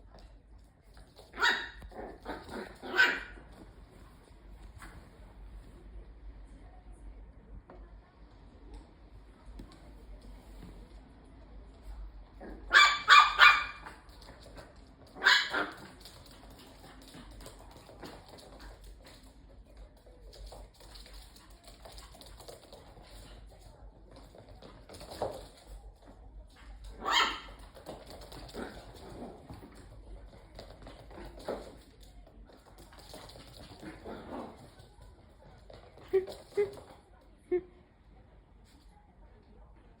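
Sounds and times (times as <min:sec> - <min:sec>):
small dog barking: 0:01.3 - 0:03.5, 0:12.4 - 0:14.0, 0:15.2 - 0:16.0, 0:26.9 - 0:27.6.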